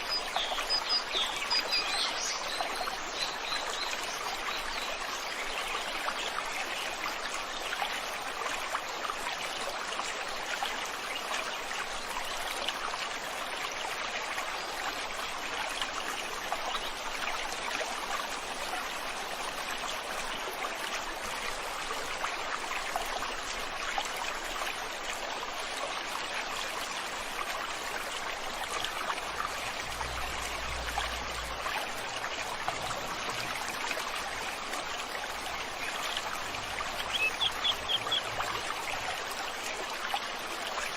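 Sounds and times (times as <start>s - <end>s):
water rushing over rocks: 12.7s - 40.9s.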